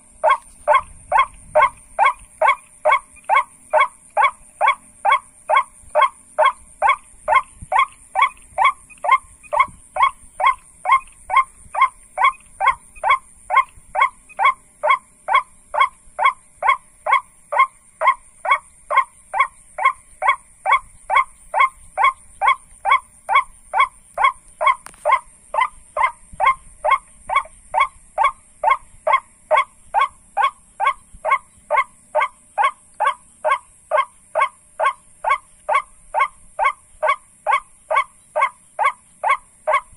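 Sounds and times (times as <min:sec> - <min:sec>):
high insect drone: 0:00.0 - 0:39.9
waterhen kwak calls: 0:00.0 - 0:39.9.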